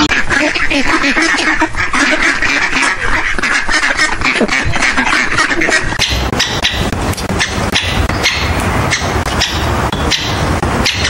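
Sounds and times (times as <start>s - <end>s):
waterfowl quacking and honking: 0.0s - 11.0s.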